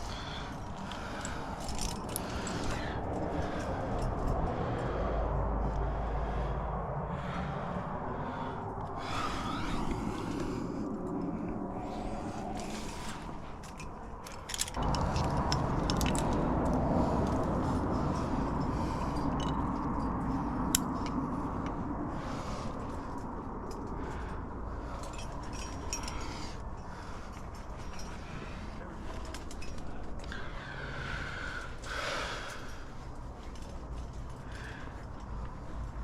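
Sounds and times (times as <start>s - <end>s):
metal gear clinking on rock: 0.0s - 4.3s, 12.6s - 16.5s, 24.9s - 30.3s
low rumble: 0.0s - 30.6s.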